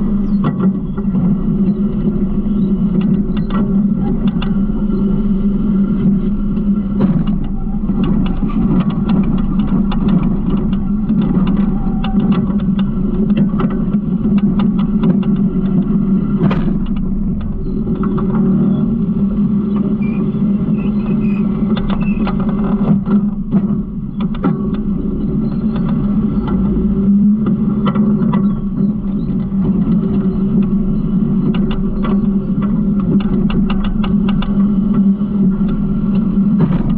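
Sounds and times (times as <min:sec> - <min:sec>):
garbage truck engine running: 0:00.0 - 0:36.9
rattles and knocks: 0:06.8 - 0:26.7.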